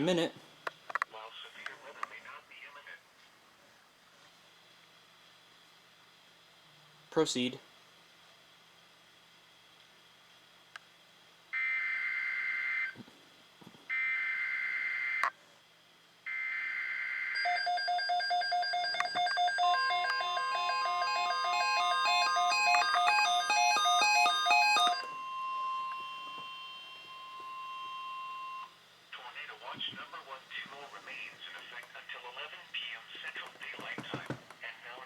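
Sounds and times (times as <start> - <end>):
steady warning alarm tone: 11.6 - 13.0, 13.9 - 15.3, 16.3 - 28.8
stepping beeps: 17.5 - 28.7.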